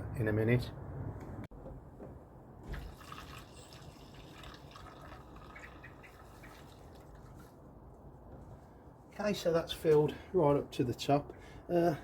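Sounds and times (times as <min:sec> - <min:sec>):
drips and splashes: 0:02.6 - 0:07.9
liquid trickling into tank: 0:02.6 - 0:07.9.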